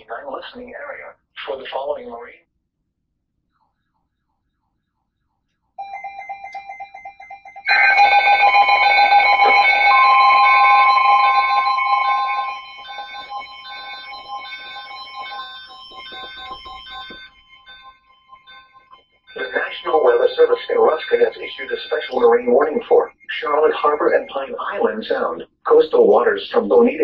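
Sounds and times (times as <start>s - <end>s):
alert tones: 5.8s - 25.3s
long steady high tone: 5.8s - 25.8s
rapid electronic beeping: 7.4s - 25.6s.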